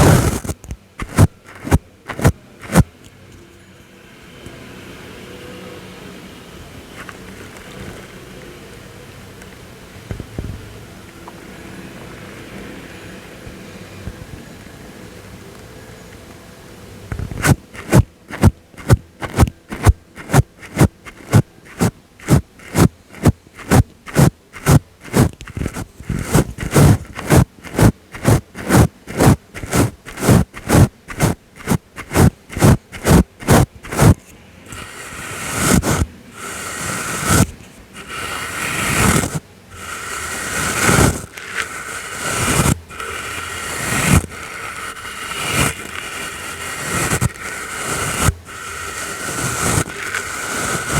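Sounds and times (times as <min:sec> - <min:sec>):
brush strokes on microphone: 0:00.0 - 0:02.9, 0:17.1 - 0:50.9.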